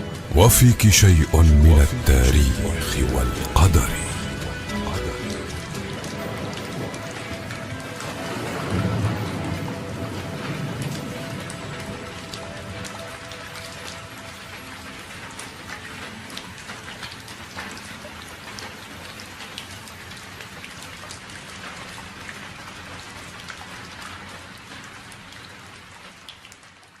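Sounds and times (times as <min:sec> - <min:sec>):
rain pattering: 0:00.0 - 0:27.0.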